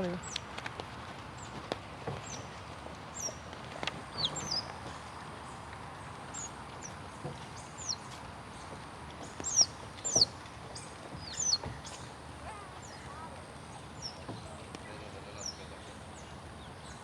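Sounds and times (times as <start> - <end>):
otter pups chirping: 11.2 - 12.0.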